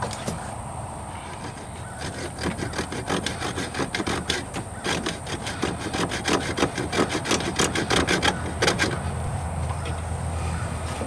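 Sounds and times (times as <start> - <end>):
hacksaw cutting metal: 1.3 - 9.2.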